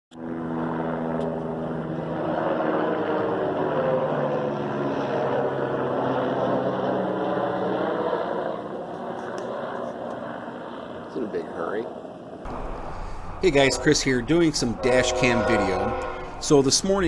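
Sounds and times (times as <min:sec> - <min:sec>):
train engine drone: 0:12.5 - 0:17.0
train rumble: 0:12.5 - 0:17.0.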